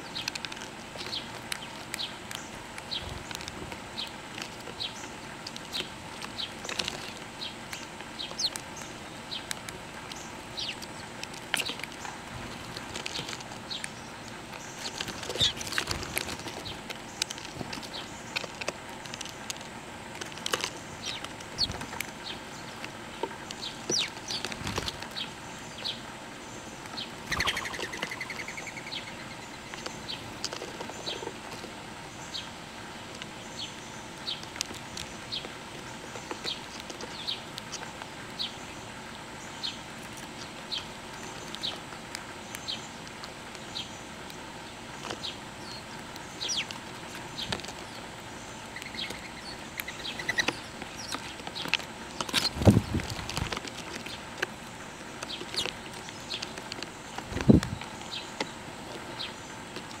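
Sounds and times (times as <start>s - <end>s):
birds chirping: 0.0s - 60.0s
wings flapping: 27.2s - 28.5s
bird warbling call: 27.2s - 29.7s, 48.7s - 51.3s.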